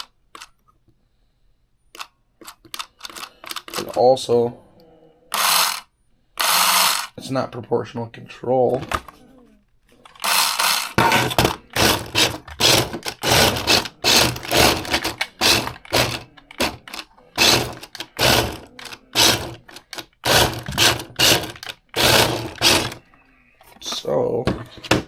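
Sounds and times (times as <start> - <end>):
toy car motor whirring in bursts: 5.3 - 7.2, 10.1 - 23.0.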